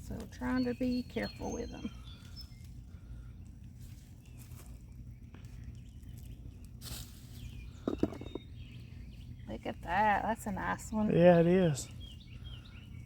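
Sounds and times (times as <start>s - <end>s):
hands rustling through soil: 0.0s - 9.3s
steady low rumble: 0.0s - 13.0s.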